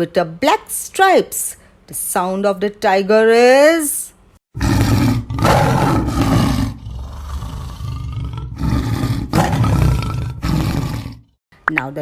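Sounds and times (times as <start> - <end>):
tiger roaring: 4.6 - 11.3.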